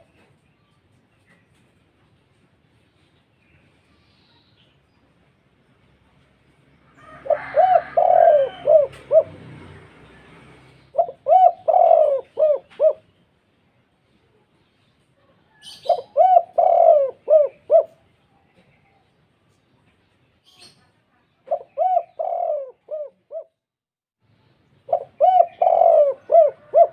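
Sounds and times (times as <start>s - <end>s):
dove cooing: 7.0s - 13.1s, 15.5s - 18.1s, 21.4s - 23.6s, 24.9s - 26.9s.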